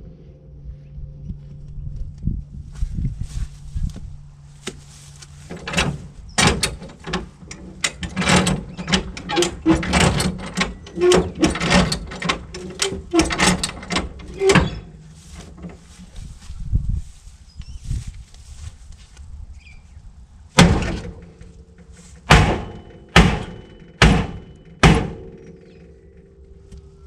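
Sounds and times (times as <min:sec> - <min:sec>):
hammer blows on sheet steel: 0:22.2 - 0:25.6.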